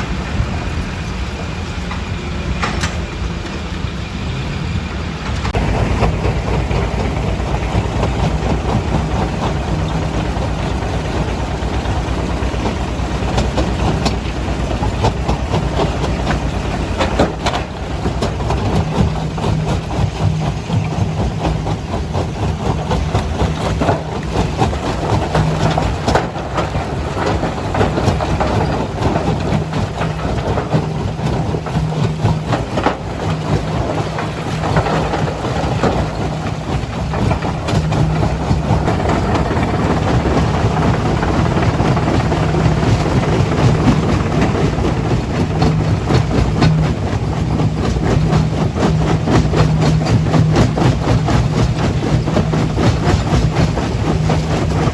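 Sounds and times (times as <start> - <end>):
machinery low hum: 0.0 - 54.9
machinery rattling and clattering: 0.0 - 54.9.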